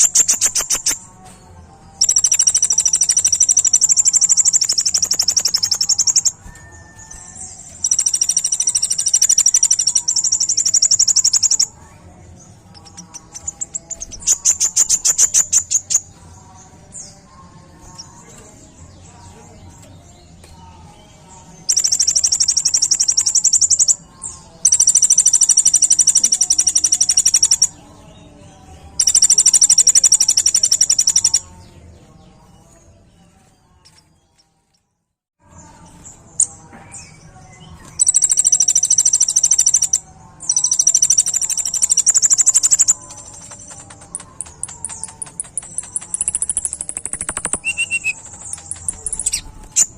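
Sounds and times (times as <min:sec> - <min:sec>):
bird high-pitched trills: 0:00.0 - 0:01.3, 0:02.0 - 0:11.8, 0:12.7 - 0:16.2, 0:21.6 - 0:27.9, 0:28.9 - 0:31.6, 0:36.4 - 0:49.9.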